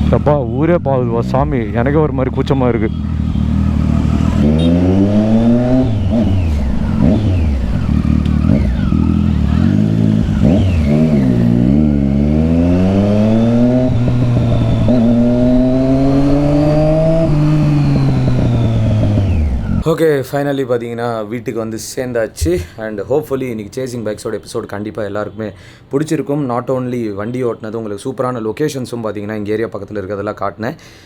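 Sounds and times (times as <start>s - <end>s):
motorcycle engine revving: 0.0s - 19.8s.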